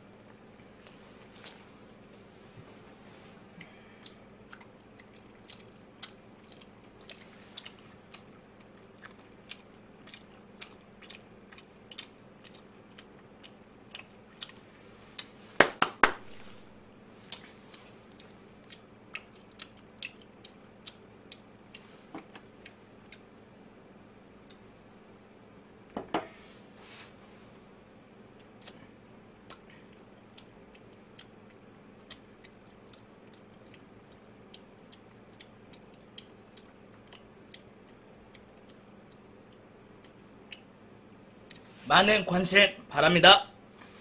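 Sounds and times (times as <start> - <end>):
person chewing crispy food: 3.6 - 15.5, 16.2 - 23.4, 28.4 - 41.8.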